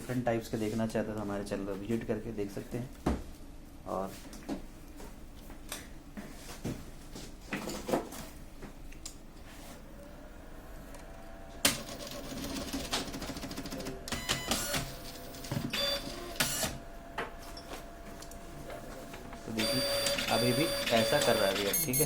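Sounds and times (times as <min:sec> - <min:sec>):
motor whine: 0:09.9 - 0:11.9.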